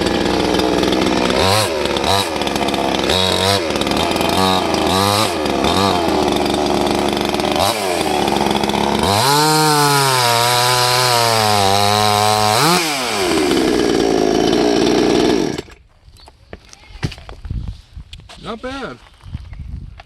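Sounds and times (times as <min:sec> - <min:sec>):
chainsaw cutting through log: 0:00.0 - 0:15.8.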